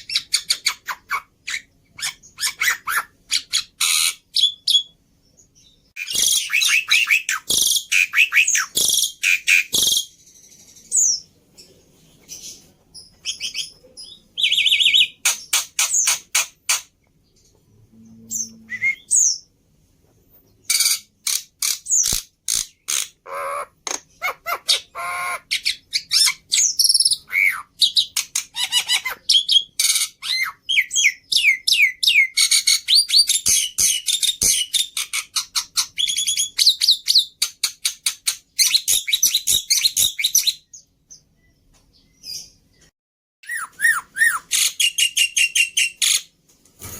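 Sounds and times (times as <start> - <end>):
bird chirps squawks and whistles: 0.0 - 5.0, 6.0 - 10.2, 20.6 - 37.3, 43.4 - 46.3.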